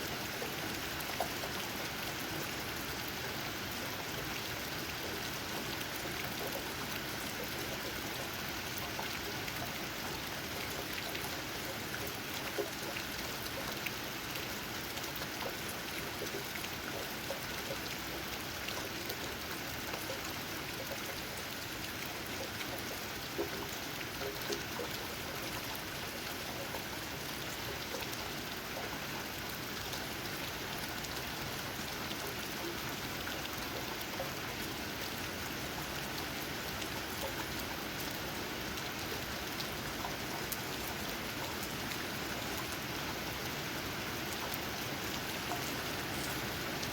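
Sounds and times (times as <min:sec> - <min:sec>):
rain tapping on leaves: 0:21.6 - 0:46.9.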